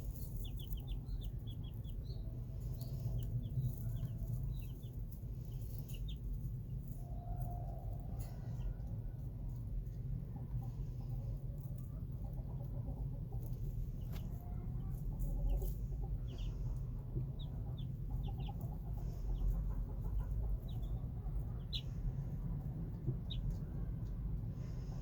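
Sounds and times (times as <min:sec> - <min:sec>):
chicks peeping: 0:00.0 - 0:25.0
steady low rumble: 0:00.0 - 0:25.0
hen clucking: 0:10.3 - 0:23.7.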